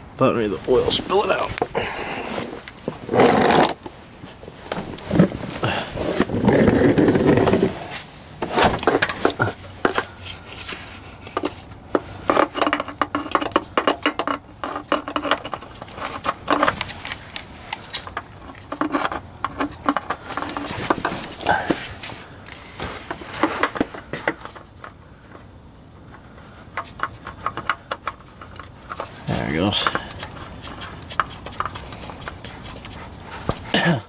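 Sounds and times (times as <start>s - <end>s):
rough scraping: 0.4s - 13.2s
hands handling oil filter: 0.5s - 33.8s.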